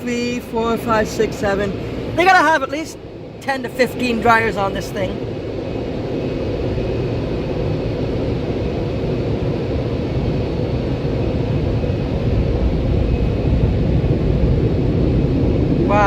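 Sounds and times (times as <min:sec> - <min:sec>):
car-wash air dryers blowing: 0:00.0 - 0:02.8.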